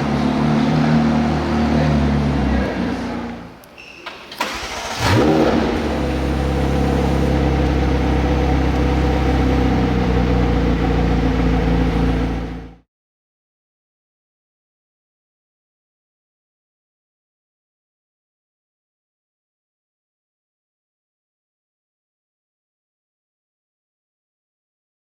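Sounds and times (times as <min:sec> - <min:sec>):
car engine starting and idling: 0:04.3 - 0:12.8.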